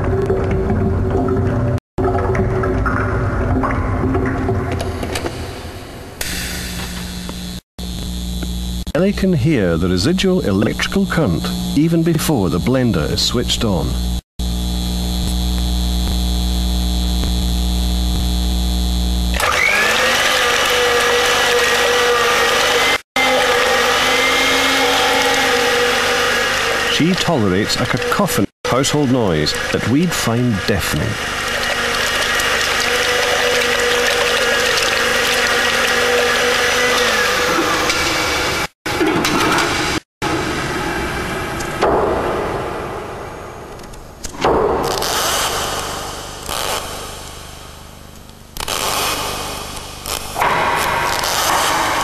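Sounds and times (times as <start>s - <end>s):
electrical mains hum: 0.0s - 44.4s
blender motor whining: 6.2s - 9.0s, 10.4s - 28.5s, 29.4s - 38.8s, 44.8s - 47.8s, 48.4s - 52.0s.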